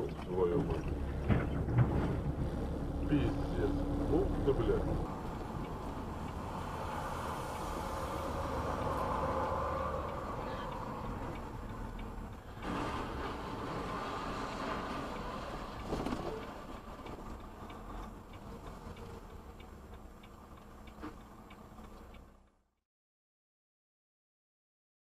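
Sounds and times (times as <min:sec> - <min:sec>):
car road and engine noise: 0:00.0 - 0:22.8
light regular ticking: 0:04.2 - 0:12.7, 0:15.1 - 0:22.6.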